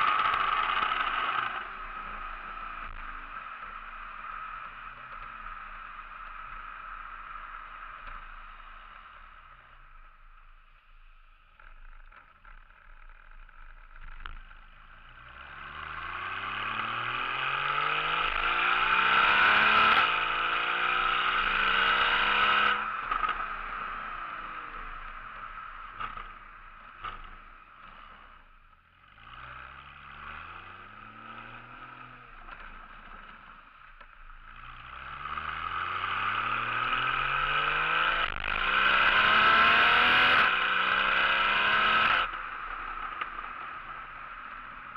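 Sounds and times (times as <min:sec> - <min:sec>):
car engine accelerating: 0:00.0 - 0:09.8, 0:13.3 - 0:44.9.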